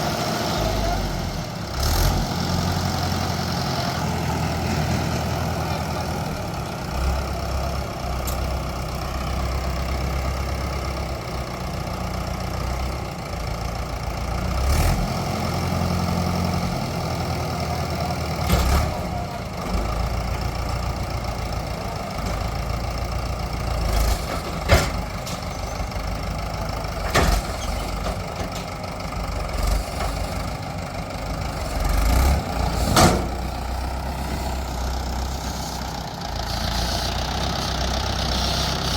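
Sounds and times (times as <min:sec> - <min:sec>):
diesel machinery engine running: 0:00.0 - 0:38.9.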